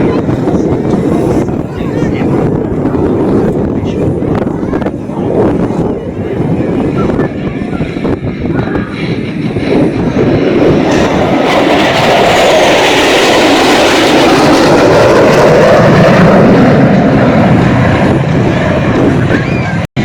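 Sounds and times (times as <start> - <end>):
jet engine roar: 0.0 - 20.0.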